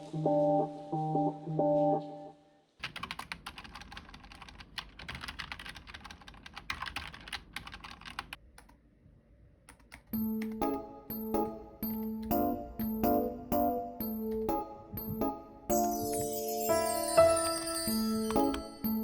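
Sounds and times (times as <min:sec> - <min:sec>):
background music: 0:00.0 - 0:02.6, 0:10.2 - 0:19.0
computer keyboard typing: 0:02.8 - 0:08.8, 0:09.7 - 0:16.2.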